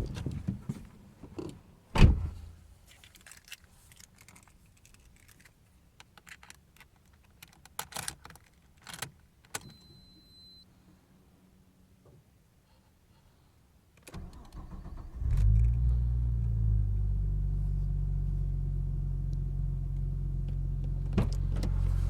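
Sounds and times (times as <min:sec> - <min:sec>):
heavy thump: 0:02.0 - 0:02.4
car keys jangling: 0:03.0 - 0:09.1.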